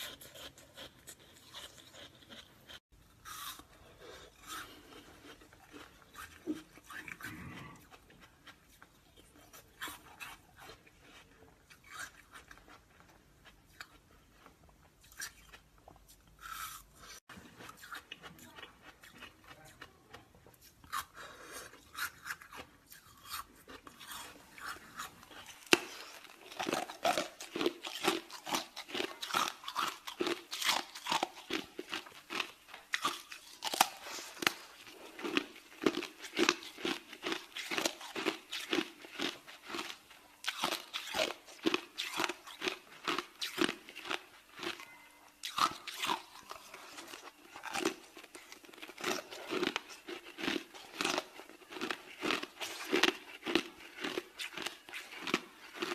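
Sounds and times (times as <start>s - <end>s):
ice being crunched and chewed: 0.0s - 55.9s.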